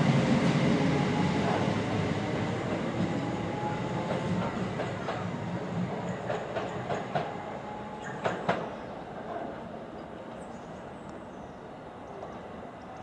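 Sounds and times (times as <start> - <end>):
train rumble: 0.0 - 13.0
train wheels clacking over rail joints: 4.0 - 5.3, 5.9 - 7.4, 8.0 - 8.7.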